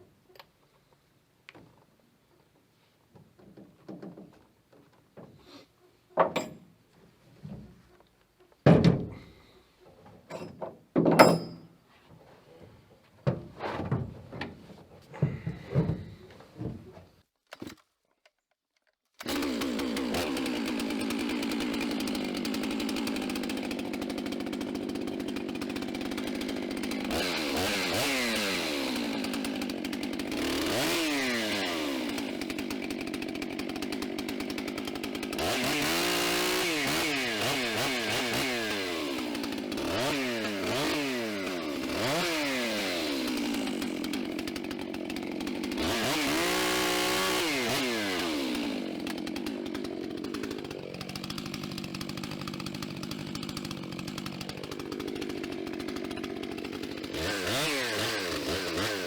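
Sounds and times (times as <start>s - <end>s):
chainsaw engine revving and idling: 19.2s - 59.0s.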